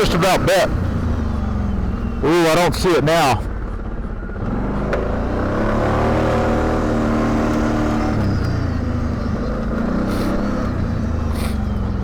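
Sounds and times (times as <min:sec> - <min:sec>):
atv engine revving: 0:04.4 - 0:12.0.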